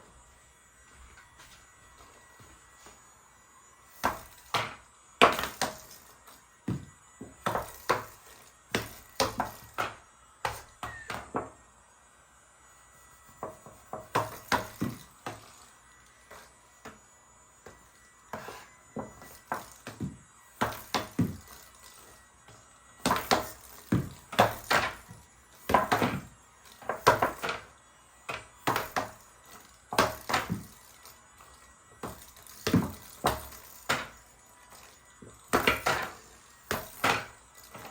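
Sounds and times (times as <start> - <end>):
plastic air hockey puck clacking: 8.8 - 11.5, 23.0 - 25.1, 25.7 - 27.7, 28.3 - 29.2, 29.9 - 30.7, 32.6 - 34.2, 35.5 - 37.9.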